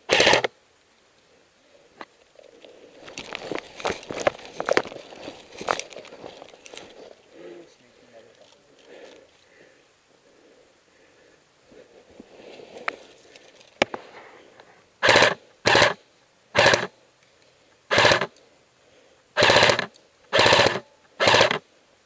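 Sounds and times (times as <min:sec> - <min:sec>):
airsoft rifle bursts: 0:00.0 - 0:00.6, 0:15.0 - 0:16.0, 0:16.6 - 0:16.9, 0:17.9 - 0:18.3, 0:19.4 - 0:21.6
sharp clicks: 0:00.0 - 0:00.6, 0:15.0 - 0:16.0, 0:16.6 - 0:18.5, 0:19.4 - 0:21.6.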